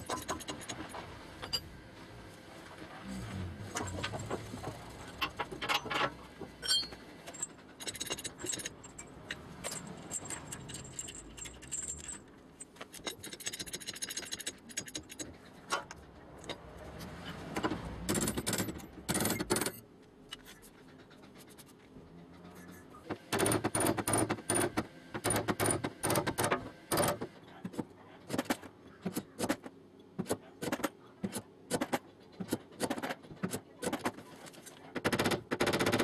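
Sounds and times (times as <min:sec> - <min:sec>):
metal tools scraping sheet metal: 0:05.1 - 0:12.1.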